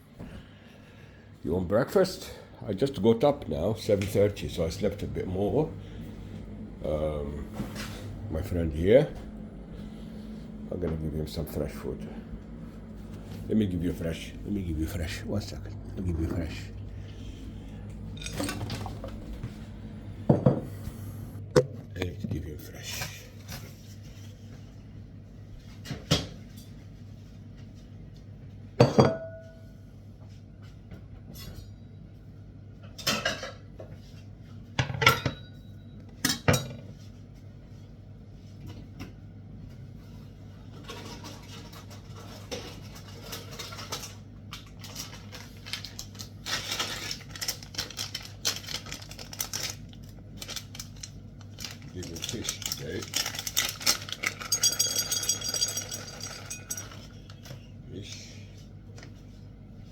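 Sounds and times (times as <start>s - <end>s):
dishes clinking: 18.1s - 19.3s, 28.8s - 29.6s, 54.3s - 57.2s
scraping and rattling of dishes: 18.1s - 19.3s, 40.6s - 44.2s, 53.1s - 57.6s.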